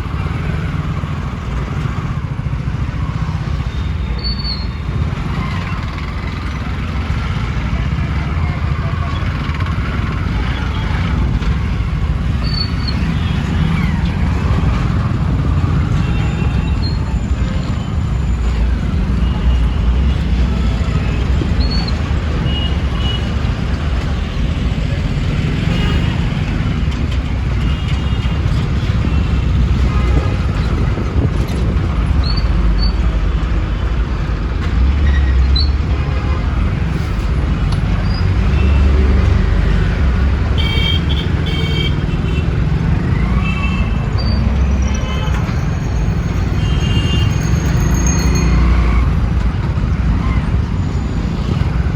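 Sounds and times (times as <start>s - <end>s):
rumble of engines and tyres: 0.0s - 51.9s
vehicle horn toots: 40.6s - 42.4s.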